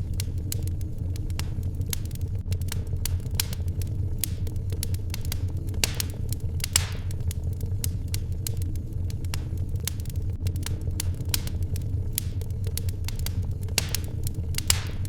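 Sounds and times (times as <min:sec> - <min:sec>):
fire hissing: 0:00.0 - 0:15.0
wood fire crackling: 0:00.0 - 0:15.0.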